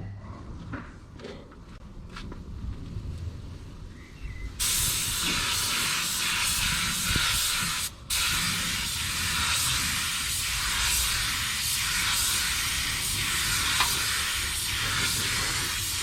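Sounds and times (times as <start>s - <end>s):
paint spray gun hissing: 4.6s - 16.0s.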